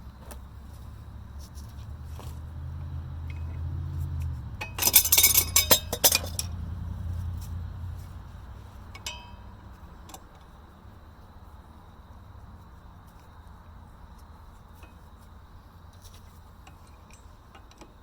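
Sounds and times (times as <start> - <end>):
metal parts clinking and clanking: 4.6 - 6.6.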